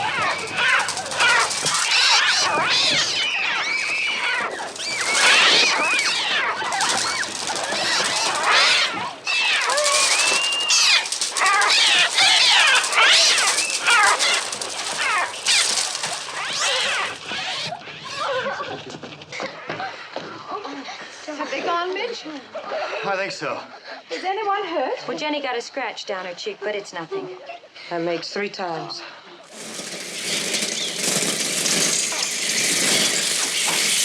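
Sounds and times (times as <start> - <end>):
flock of gulls shrieking: 0.0 - 18.2.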